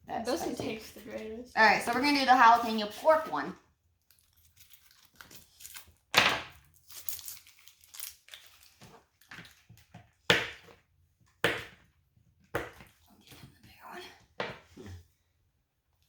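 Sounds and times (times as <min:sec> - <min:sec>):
plastic wrapper crinkling: 0:04.0 - 0:09.6.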